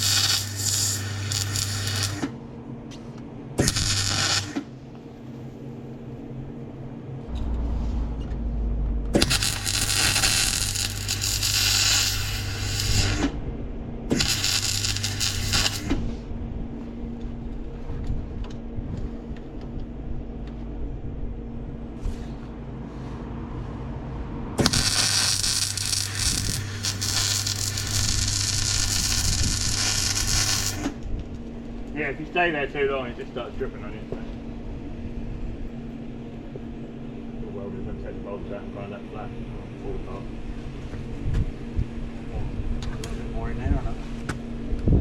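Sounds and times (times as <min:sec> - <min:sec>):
welding arc crackling and sizzling: 0:00.0 - 0:02.3, 0:03.6 - 0:04.7, 0:09.1 - 0:13.4, 0:14.1 - 0:16.0, 0:24.6 - 0:31.0
welder humming: 0:00.0 - 0:02.4, 0:03.6 - 0:04.8, 0:07.3 - 0:13.4, 0:14.1 - 0:16.1, 0:24.6 - 0:31.0.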